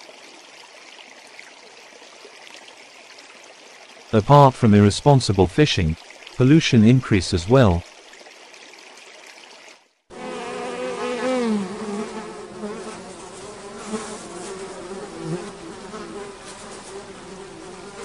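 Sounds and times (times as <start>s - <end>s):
flies buzzing: 10.1s - 18.0s.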